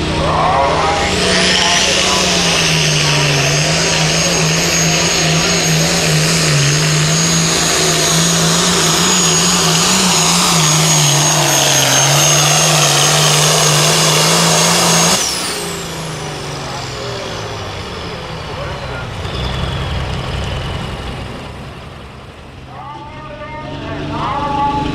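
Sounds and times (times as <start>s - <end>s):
tractor diesel engine running flat out: 0.0s - 24.9s
high turbo whistle: 0.8s - 20.7s.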